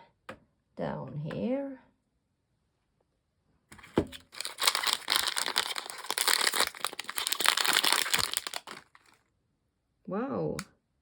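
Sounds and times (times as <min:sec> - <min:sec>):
plastic packaging crinkling: 0:04.1 - 0:09.2.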